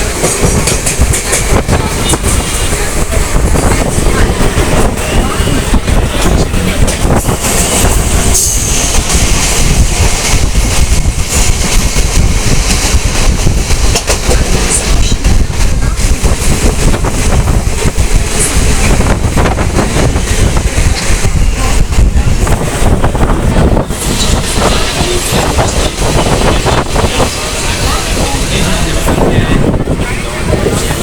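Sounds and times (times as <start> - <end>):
train rumbling along track: 0.0 - 31.0.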